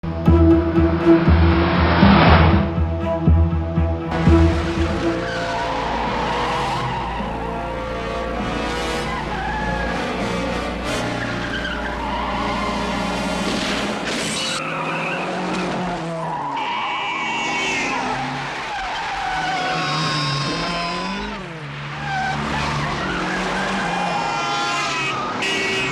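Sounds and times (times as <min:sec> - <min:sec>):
film music: 0:00.0 - 0:14.0
car engines revving: 0:00.0 - 0:25.9
tyres skidding: 0:00.0 - 0:25.9.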